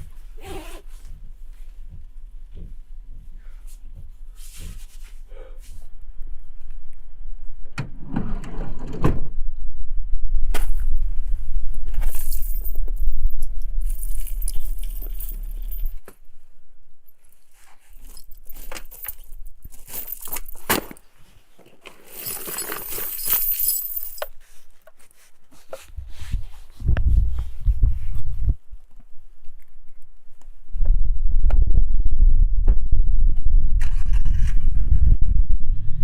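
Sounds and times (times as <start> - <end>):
low rumble: 5.9 - 17.2, 26.0 - 28.8, 30.7 - 36.0
metal jangling and clinking: 12.0 - 16.1, 17.9 - 21.0, 21.9 - 24.4.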